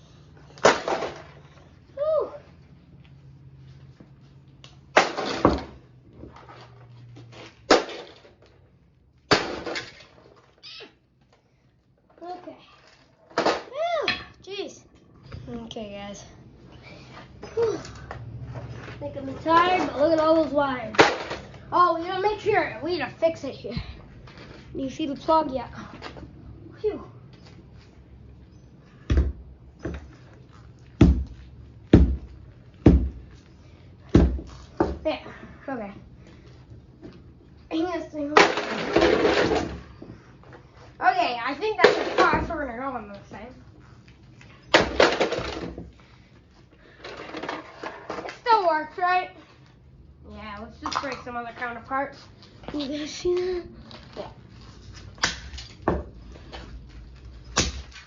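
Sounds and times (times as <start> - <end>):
coffee maker being smashed: 9.3 - 10.1, 21.0 - 21.5, 38.3 - 39.8, 44.7 - 45.8.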